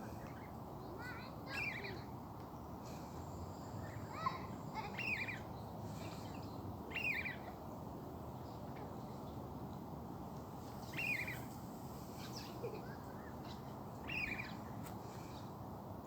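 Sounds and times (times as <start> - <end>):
birds chirping: 3.8 - 7.6, 12.2 - 15.5.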